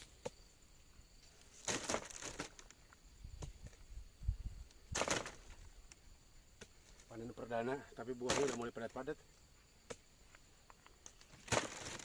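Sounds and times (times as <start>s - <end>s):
vegetation rustling and crunching: 1.2s - 3.8s, 4.9s - 5.7s, 8.2s - 8.8s, 11.0s - 12.0s.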